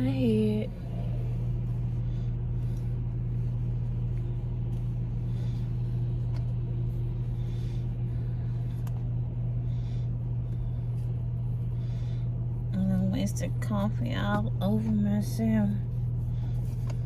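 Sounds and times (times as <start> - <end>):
car idling inside cabin: 0.0 - 11.6.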